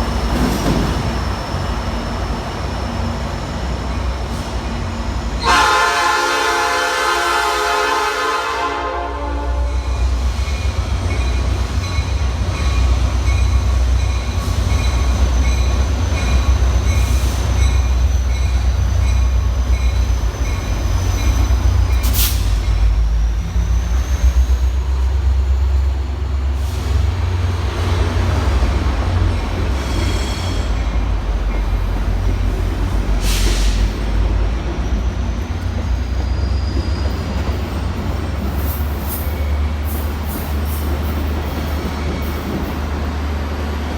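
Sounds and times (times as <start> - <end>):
train rumble: 0.0 - 43.9
wheel squeal: 29.2 - 31.0, 34.7 - 40.9.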